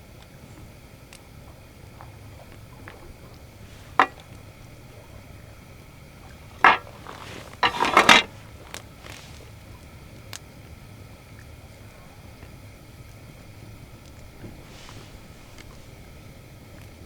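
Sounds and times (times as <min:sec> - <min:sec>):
metal clinks and clatters: 0:06.6 - 0:08.3.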